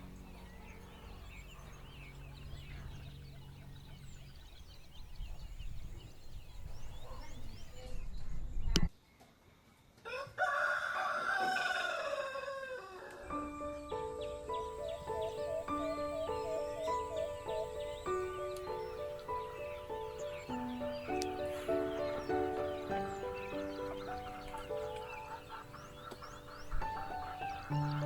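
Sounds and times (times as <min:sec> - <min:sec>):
small birds chirping: 0:00.0 - 0:10.0, 0:13.2 - 0:28.0
rooster crowing: 0:10.0 - 0:13.3.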